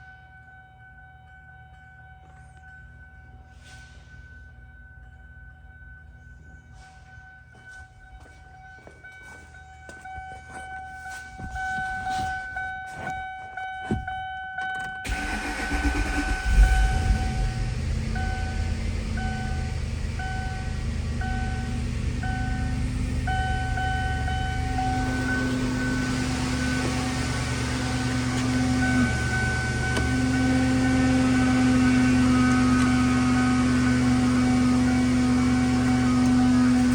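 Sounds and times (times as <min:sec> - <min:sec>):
electronic warning chime: 0:03.0 - 0:36.9
car engine starting and idling: 0:14.8 - 0:36.9.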